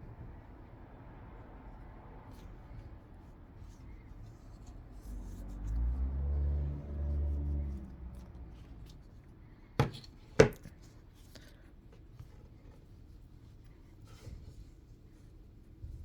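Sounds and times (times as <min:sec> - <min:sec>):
sharp knocks on hard surface: 0:09.8 - 0:10.6.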